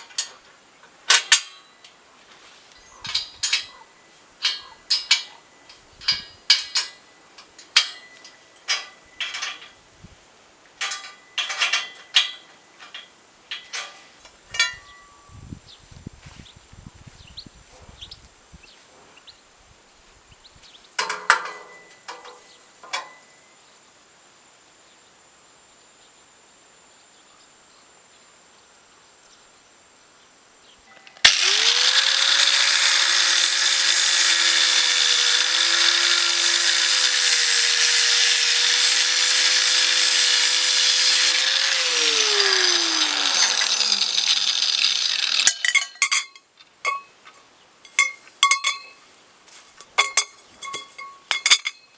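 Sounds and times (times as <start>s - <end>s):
electric power tool running: 31.2s - 45.6s.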